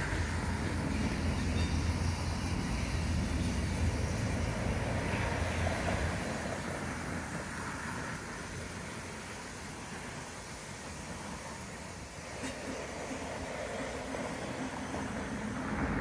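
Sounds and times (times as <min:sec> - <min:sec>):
train wheels rolling on rails: 0:00.0 - 0:16.0.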